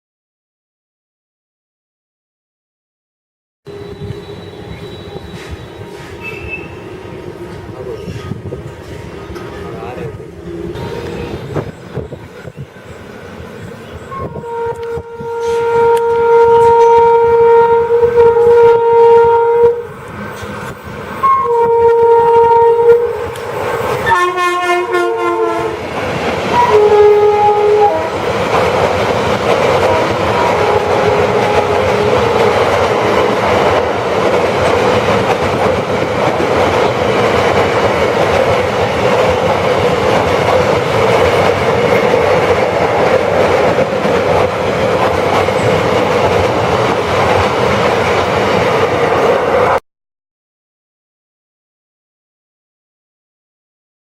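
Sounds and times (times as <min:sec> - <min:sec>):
locomotive horn blasts: 0:14.1 - 0:19.9, 0:21.2 - 0:23.4, 0:24.0 - 0:25.8, 0:26.6 - 0:28.2, 0:29.8 - 0:32.8.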